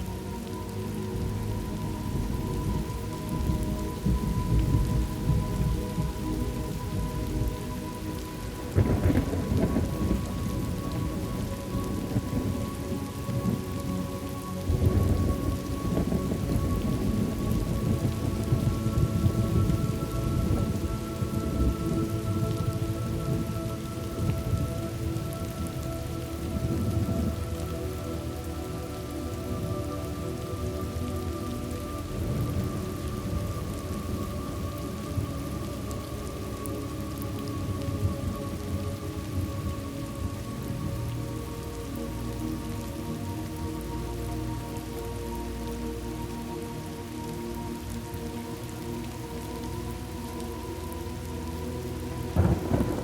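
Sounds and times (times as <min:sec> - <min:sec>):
steady rain falling: 0:00.0 - 0:53.0
rolling thunder: 0:08.7 - 0:13.7, 0:14.6 - 0:27.6, 0:52.3 - 0:53.0.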